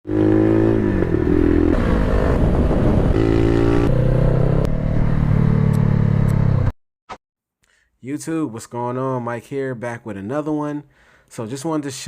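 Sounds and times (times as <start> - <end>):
motorcycle engine revving: 0.1 - 6.7.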